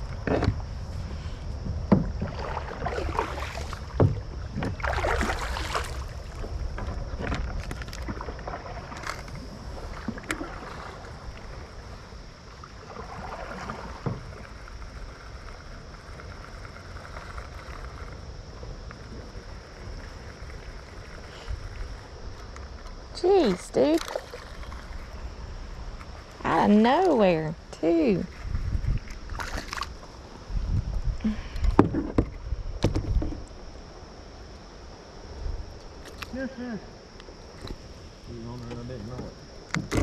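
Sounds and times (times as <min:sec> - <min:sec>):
knocks against kayak hull: 0:01.6 - 0:02.4, 0:03.9 - 0:05.0, 0:31.6 - 0:33.4
water splashing: 0:02.0 - 0:22.4, 0:23.1 - 0:30.4.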